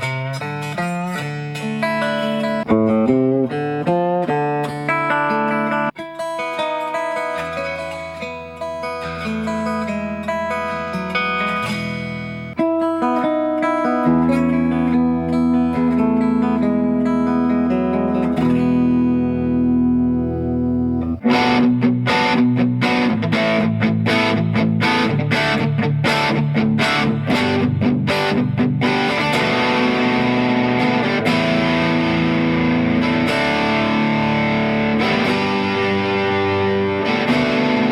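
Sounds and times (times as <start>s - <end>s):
electric guitar through amp: 11.4s - 37.9s.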